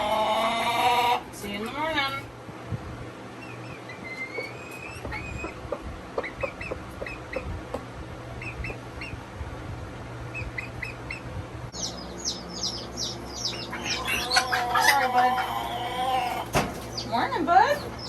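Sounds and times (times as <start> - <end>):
birds chirping: 3.2 - 9.2, 10.2 - 18.0.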